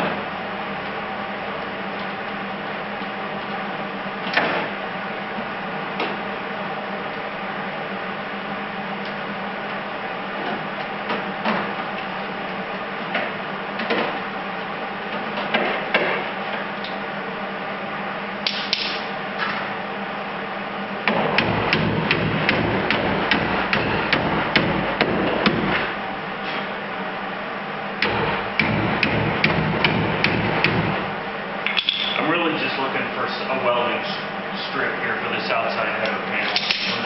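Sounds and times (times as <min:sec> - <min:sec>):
hammer striking sheet metal: 0:28.0 - 0:31.0.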